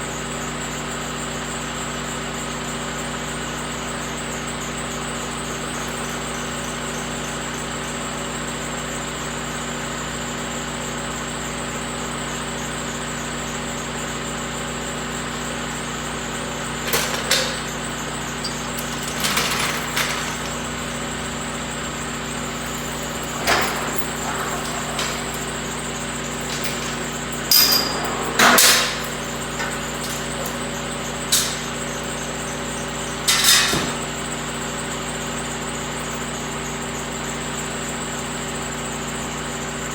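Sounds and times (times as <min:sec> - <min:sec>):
metal clanks and knocks: 0:16.5 - 0:34.3.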